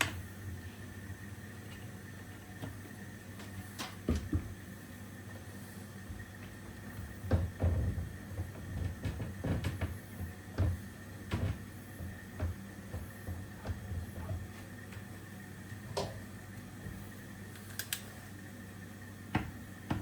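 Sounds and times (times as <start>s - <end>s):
steady low hum: 0.0s - 20.0s
hard objects knocking and clunking: 4.0s - 4.6s, 6.1s - 15.0s, 19.3s - 20.0s.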